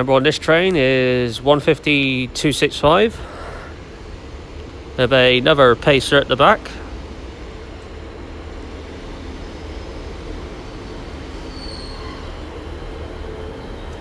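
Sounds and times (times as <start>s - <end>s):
train engine hum: 0.0s - 14.0s
short high squeal: 11.4s - 12.5s.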